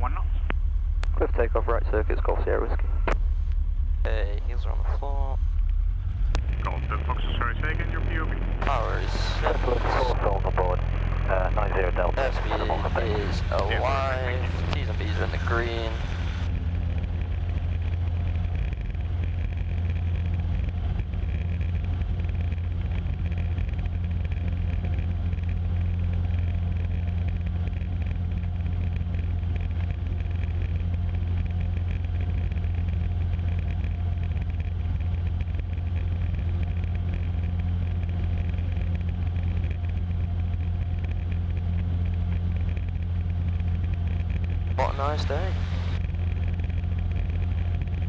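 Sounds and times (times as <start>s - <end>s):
light aircraft engine drone: 0.0s - 48.0s.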